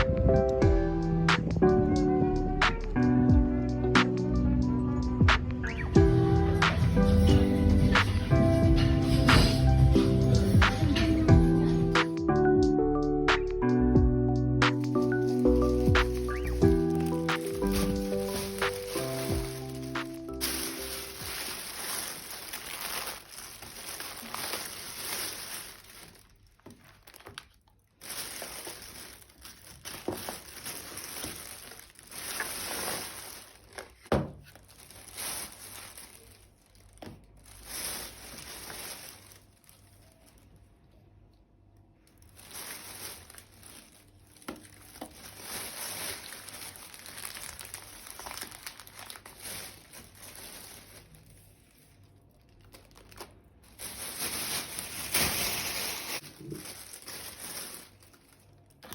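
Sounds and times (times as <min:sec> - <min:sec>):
plastic packaging crinkling: 0:14.6 - 0:58.9.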